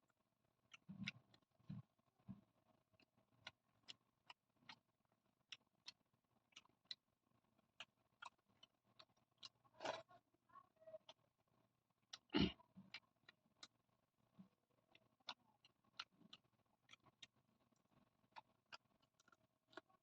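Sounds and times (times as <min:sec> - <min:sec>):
wet chewing mouth clicks: 0:00.7 - 0:02.4, 0:03.0 - 0:04.8, 0:05.5 - 0:07.0, 0:14.4 - 0:17.4, 0:18.0 - 0:20.0.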